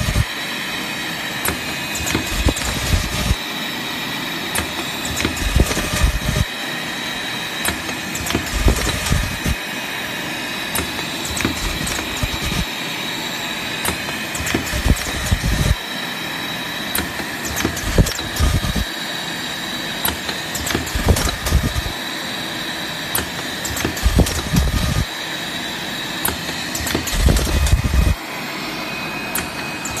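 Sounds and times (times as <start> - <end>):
machine clicks and clunks: 0.0 - 0.3, 1.4 - 3.4, 4.5 - 6.5, 7.6 - 9.6, 10.7 - 12.7, 13.8 - 15.8, 16.9 - 18.9, 20.0 - 22.0, 23.1 - 25.1, 26.2 - 28.2, 29.3 - 30.0
packaging machine whine and rumble: 0.0 - 30.0.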